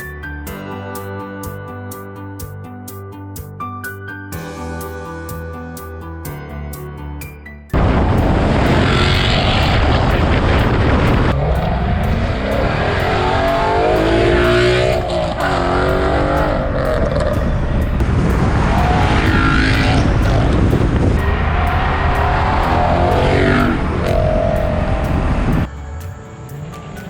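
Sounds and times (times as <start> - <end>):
car engine revving: 7.8 - 25.7.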